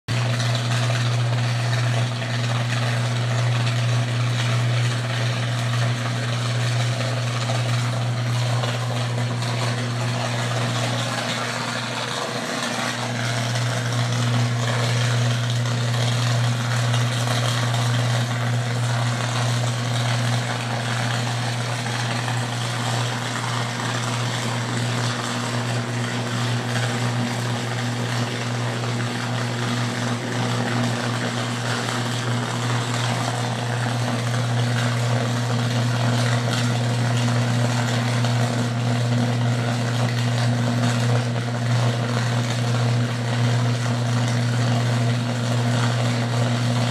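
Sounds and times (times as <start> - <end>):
transformer buzzing hum: 0.1 - 39.2.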